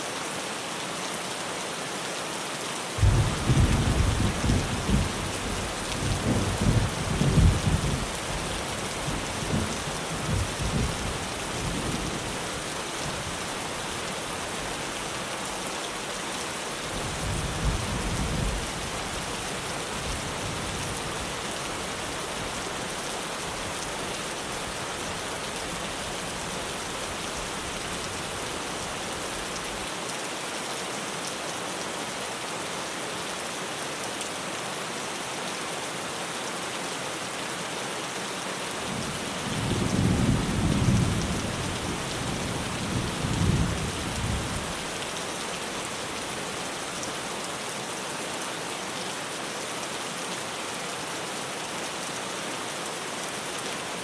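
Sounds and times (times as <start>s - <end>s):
heavy rain on tin roof: 0.0s - 54.0s
thunder rumbling: 3.0s - 12.0s.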